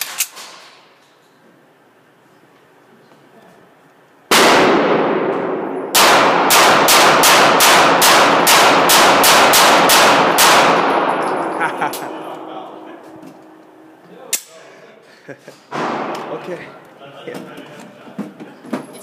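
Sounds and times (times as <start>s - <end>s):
gunshots echoing: 4.3s - 13.0s, 15.7s - 16.5s.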